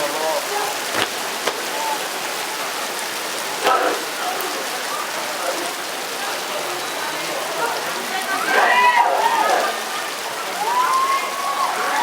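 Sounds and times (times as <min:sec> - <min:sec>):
steady rain falling: 0:00.0 - 0:12.0
sharp knocks: 0:01.0 - 0:01.6.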